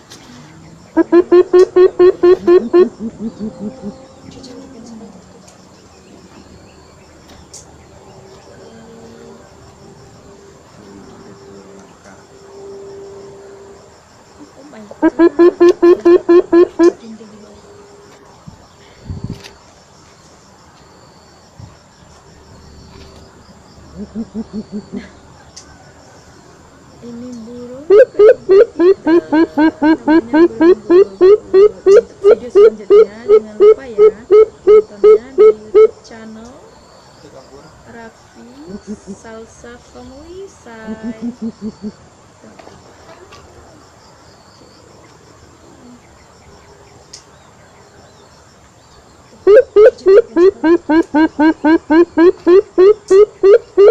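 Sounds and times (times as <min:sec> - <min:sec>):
insects chirping: 0:00.0 - 0:53.9
bird giving deep hoots: 0:01.0 - 0:04.9, 0:24.0 - 0:25.0.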